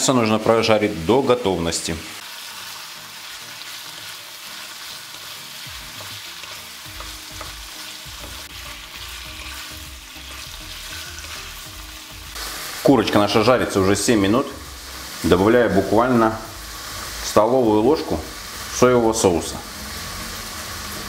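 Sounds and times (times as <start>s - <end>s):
chicken sizzling in a frying pan: 0.0s - 21.0s
wooden spatula scraping a pan: 8.2s - 11.6s.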